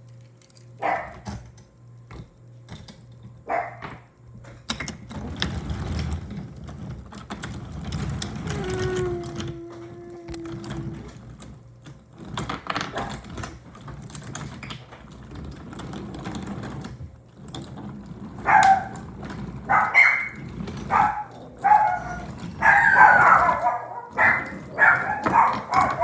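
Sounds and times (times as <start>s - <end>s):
dog barking: 0.8s - 1.2s, 3.5s - 3.9s, 18.5s - 19.0s, 19.7s - 26.0s.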